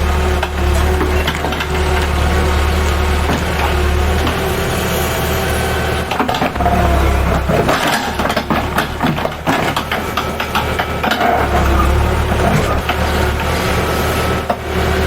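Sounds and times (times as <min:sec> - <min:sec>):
engine running: 0:00.0 - 0:15.0
irregular knocks and clatter: 0:06.1 - 0:13.5.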